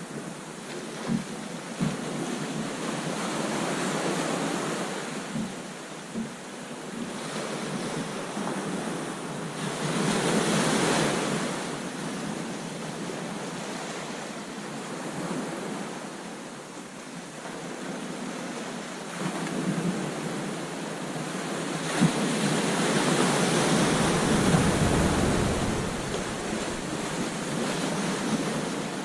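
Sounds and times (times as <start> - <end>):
waves breaking on beach: 0.0 - 29.0
wind buffeting microphone: 21.9 - 29.0.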